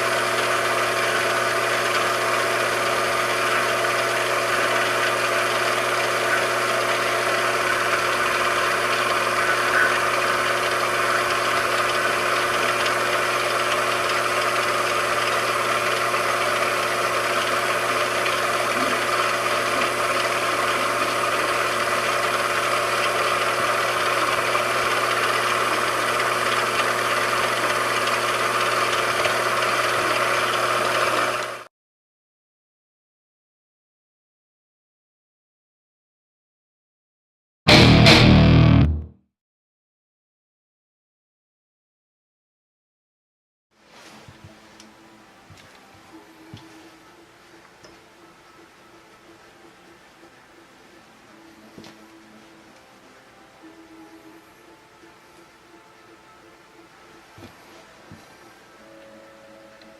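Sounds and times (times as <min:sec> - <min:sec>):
machine tool motor hum: 0:00.0 - 0:31.7
whirring noise: 0:00.0 - 0:31.7.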